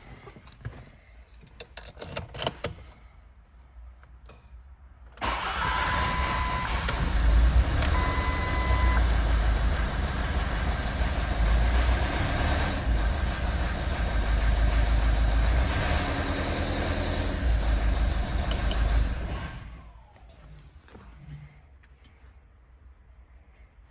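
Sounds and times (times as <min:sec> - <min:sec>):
car engine starting and running: 0:05.2 - 0:20.4
short beeps: 0:07.9 - 0:09.0.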